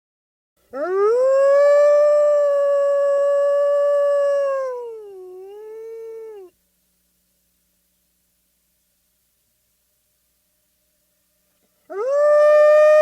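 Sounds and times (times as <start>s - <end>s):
wolf howling: 0.7s - 6.5s, 11.9s - 13.0s.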